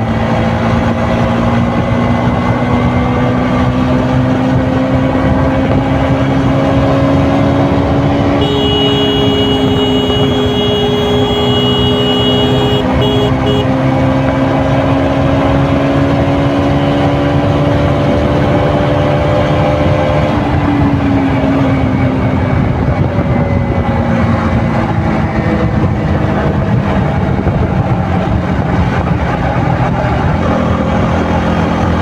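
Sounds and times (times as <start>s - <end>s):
motorcycle engine cruising: 0.0s - 32.0s
steady high tone: 8.4s - 13.7s.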